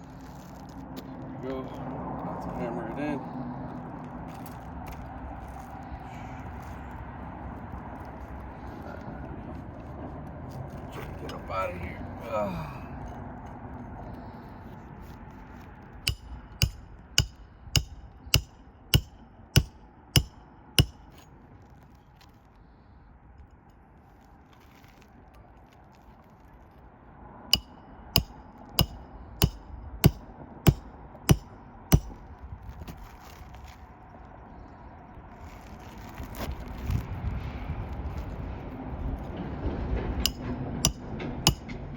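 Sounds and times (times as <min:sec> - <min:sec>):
hammer striking roofing nails: 0:16.1 - 0:21.1, 0:27.6 - 0:32.2, 0:40.2 - 0:41.9.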